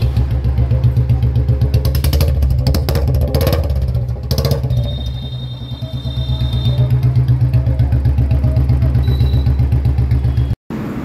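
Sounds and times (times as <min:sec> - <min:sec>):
motorcycle engine idling: 0:00.0 - 0:10.6.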